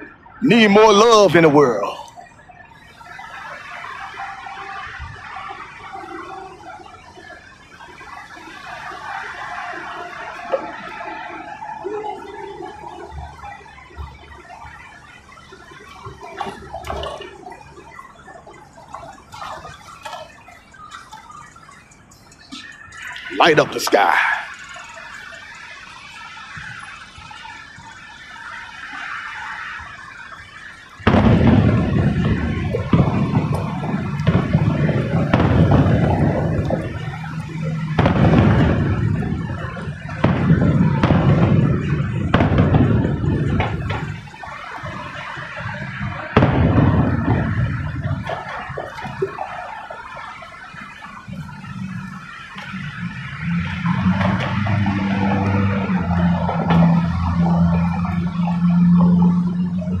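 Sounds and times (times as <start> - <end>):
fireworks pops and crackles: 7.1 - 59.4
low rumble of booms: 31.0 - 49.5
loud firework bang: 31.0 - 50.2, 52.3 - 58.0.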